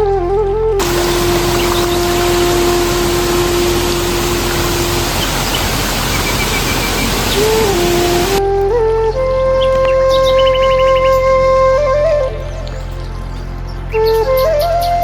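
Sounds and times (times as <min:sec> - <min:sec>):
background music: 0:00.0 - 0:05.9, 0:07.4 - 0:15.0
held flute note: 0:00.1 - 0:05.6, 0:06.7 - 0:13.1
faint bird chirps: 0:00.8 - 0:08.4
loud steady rushing noise: 0:00.8 - 0:08.4.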